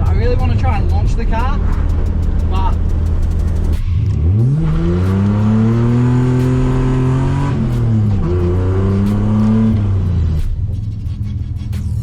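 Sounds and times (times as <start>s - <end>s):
car engine revving hard: 3.6s - 10.4s.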